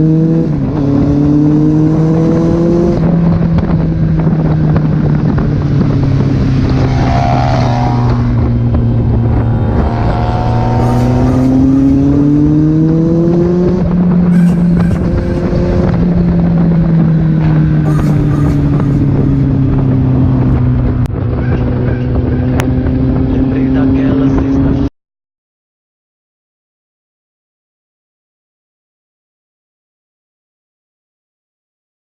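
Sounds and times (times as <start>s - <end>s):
motorcycle engine running: 0.0s - 24.8s.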